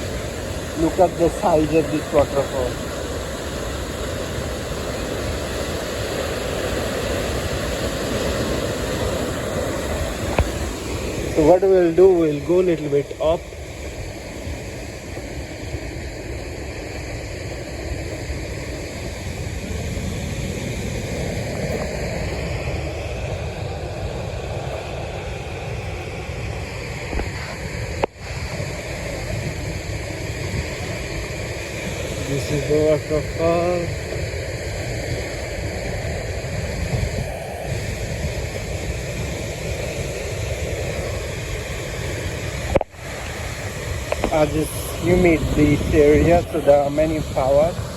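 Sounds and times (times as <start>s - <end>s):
waterfall rushing: 0.0s - 24.8s, 37.2s - 47.9s
wind buffeting microphone: 0.0s - 47.9s.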